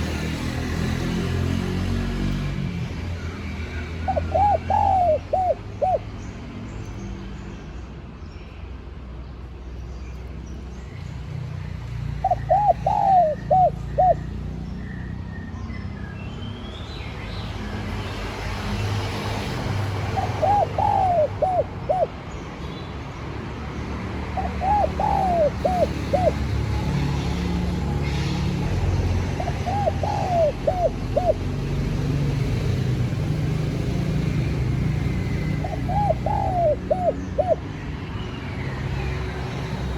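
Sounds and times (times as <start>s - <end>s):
dove cooing: 4.0s - 6.1s, 12.2s - 14.4s, 20.0s - 22.2s, 24.4s - 27.0s, 29.3s - 31.6s, 35.2s - 37.7s.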